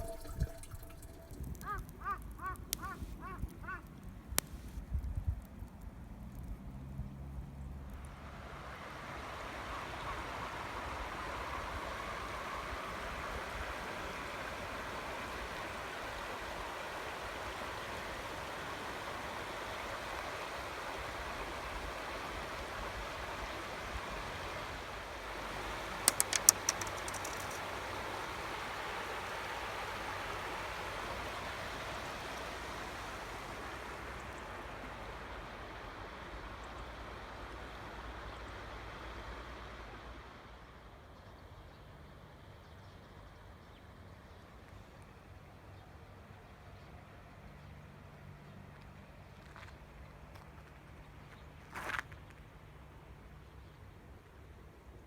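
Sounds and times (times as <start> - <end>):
sharp clicks: 26.0 - 27.6.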